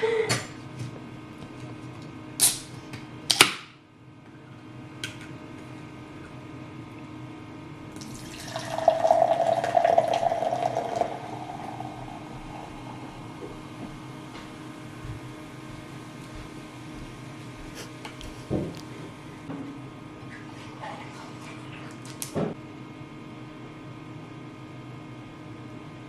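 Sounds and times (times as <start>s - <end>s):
low steady hum: 4.2s - 22.9s
water running: 7.9s - 15.4s.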